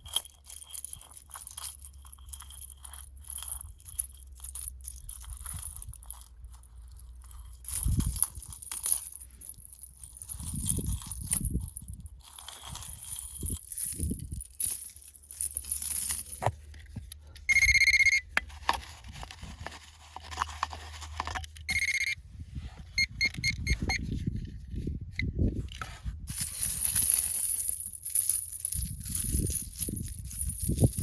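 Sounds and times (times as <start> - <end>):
electronic beeps: 17.5 - 18.2, 21.7 - 22.2, 23.0 - 24.0.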